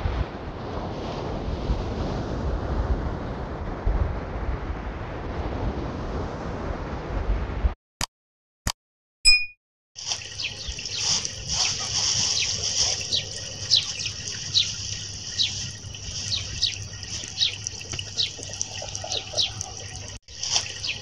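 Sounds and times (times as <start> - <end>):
birds chirping: 10.2 - 21.0.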